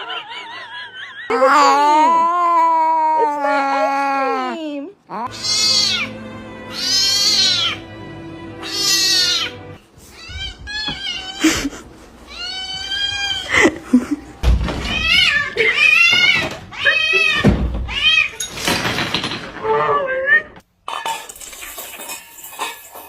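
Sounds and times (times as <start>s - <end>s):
cat meowing: 6.7s - 7.8s, 8.6s - 9.6s.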